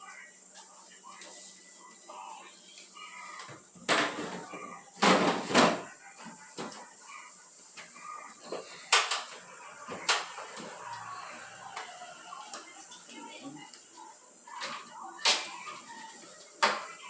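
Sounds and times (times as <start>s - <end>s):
refrigerator shelves clattering: 3.9s - 5.9s.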